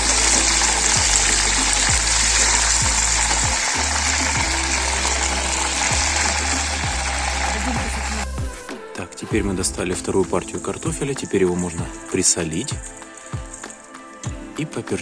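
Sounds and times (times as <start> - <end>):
chicken frying in hot oil: 0.0 - 8.3
background music with bass line: 0.0 - 15.0.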